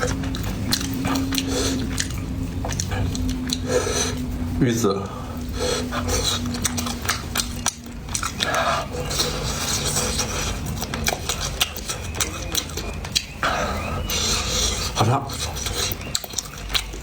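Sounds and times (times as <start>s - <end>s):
wet chewing mouth sounds: 0.0s - 17.0s.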